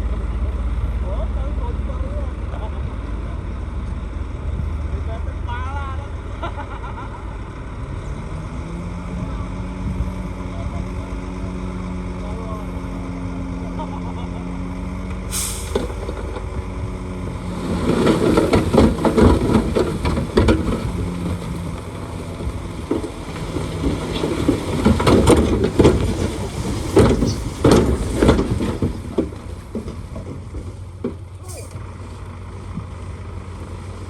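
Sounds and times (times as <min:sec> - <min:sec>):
bulldozer diesel engine: 0:00.0 - 0:34.0
tracks clanking and crunching: 0:15.0 - 0:33.8
short hiss: 0:15.3 - 0:16.0.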